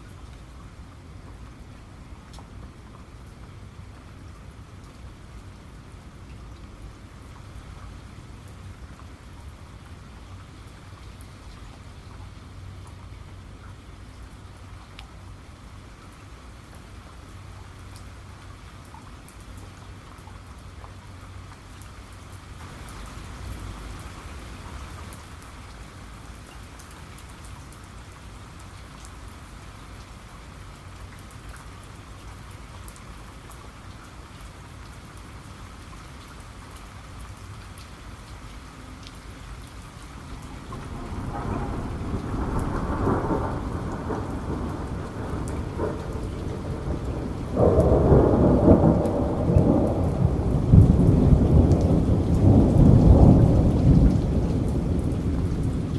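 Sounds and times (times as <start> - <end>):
steady rain falling: 0.0 - 55.9
thunder rumbling: 40.2 - 55.9.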